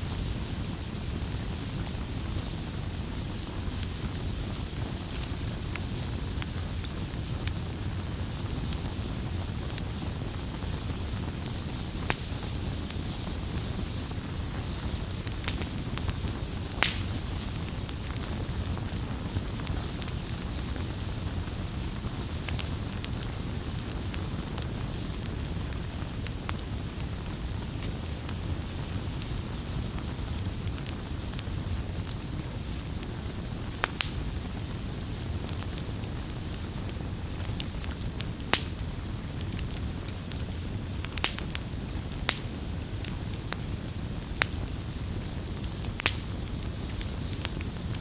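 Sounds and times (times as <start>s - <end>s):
campfire flames rumbling: 0.0s - 48.0s
fire popping and snapping: 0.0s - 48.0s.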